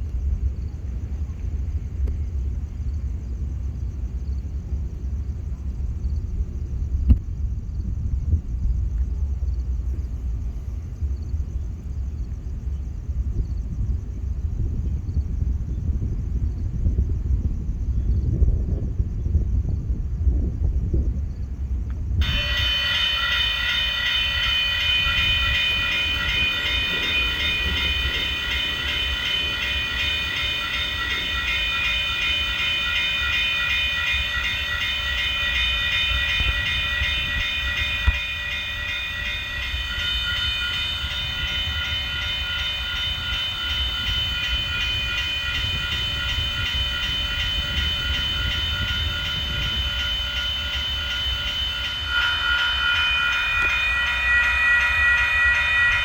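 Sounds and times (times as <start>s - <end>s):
train rumbling past: 0.0s - 56.0s
high-pitched ringing tones: 22.2s - 56.0s.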